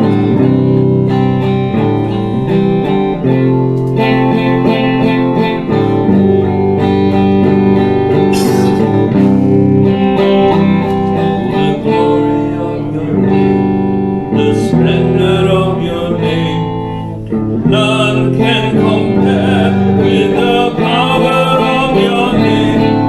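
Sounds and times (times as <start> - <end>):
strummed guitar: 0.0 - 23.0
band playing: 8.2 - 9.8
cymbal swell: 8.3 - 9.0.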